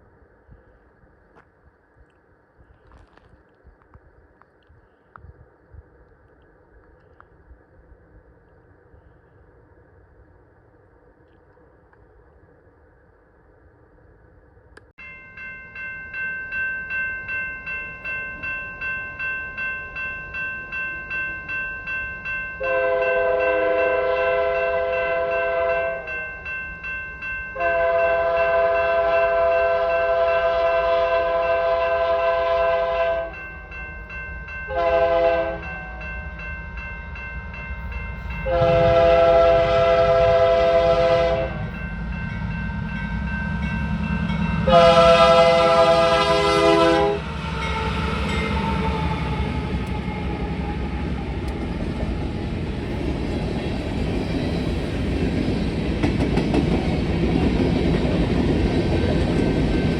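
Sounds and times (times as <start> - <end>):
crossing bell ringing: 15.0 - 50.9
locomotive horn blasts: 22.6 - 26.1, 27.6 - 33.4, 34.7 - 36.1, 38.4 - 41.8, 44.6 - 50.5
locomotive rumble: 34.8 - 59.9.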